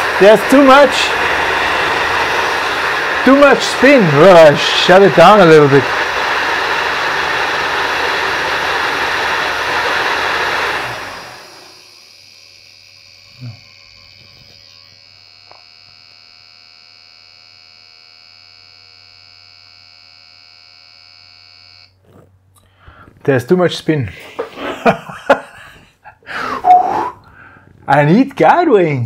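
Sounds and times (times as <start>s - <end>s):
ducted fan rushing: 0.0s - 13.3s.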